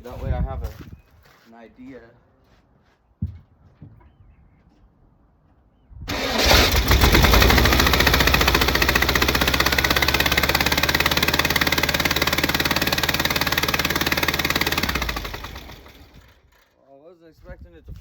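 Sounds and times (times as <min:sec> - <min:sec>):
car engine starting and running: 0:06.1 - 0:16.4.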